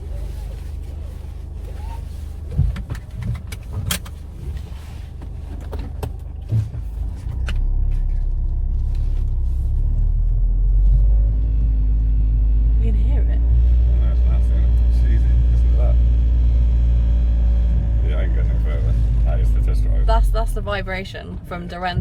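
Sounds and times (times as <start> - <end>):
car engine drone inside cabin: 0.0 - 22.0
sharp clicks and knocks: 2.5 - 4.2.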